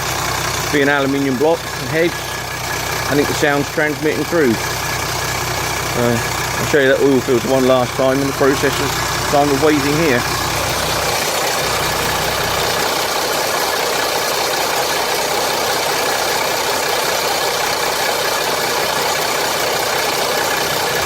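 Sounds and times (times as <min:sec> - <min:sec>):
diesel engine idling with rattle: 0:00.0 - 0:21.0.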